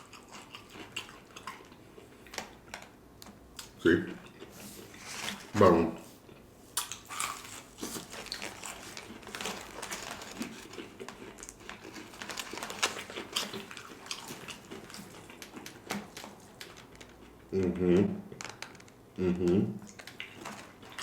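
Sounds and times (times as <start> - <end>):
crispy food crackling: 0.0 - 2.9, 6.3 - 19.0, 19.9 - 21.0
chewing: 0.0 - 5.5, 6.2 - 17.5, 19.8 - 21.0.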